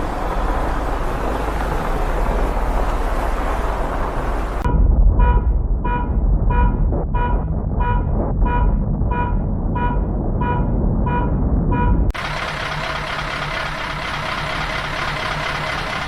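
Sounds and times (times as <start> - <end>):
loud low rumble: 0.0 - 16.0
electronic alarm beeping: 5.2 - 12.1.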